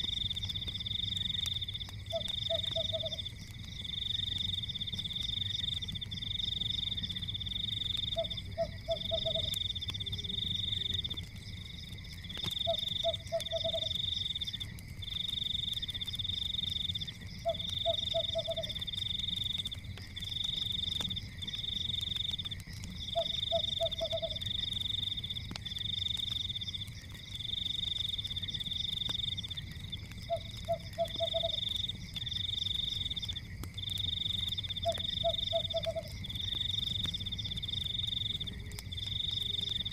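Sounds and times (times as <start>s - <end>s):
fire crackling: 0.0s - 39.9s
frogs trilling: 0.0s - 39.9s
frog croaks: 2.1s - 3.3s, 8.0s - 11.2s, 12.5s - 14.0s, 17.4s - 18.9s, 23.0s - 24.4s, 30.2s - 31.7s, 34.8s - 36.3s.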